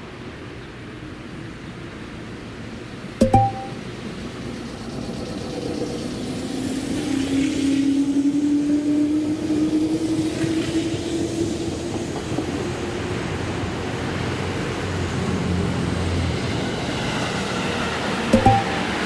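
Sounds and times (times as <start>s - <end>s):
electric train passing: 4.8s - 19.0s.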